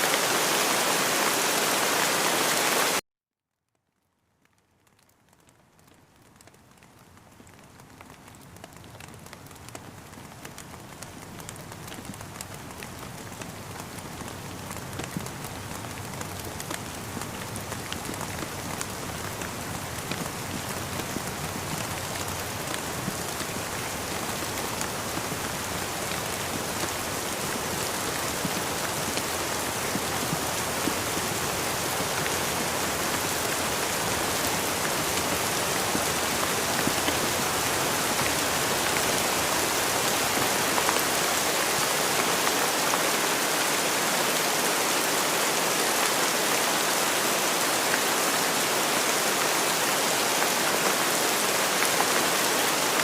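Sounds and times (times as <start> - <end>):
steady rain falling: 0.0 - 3.0, 3.7 - 53.0.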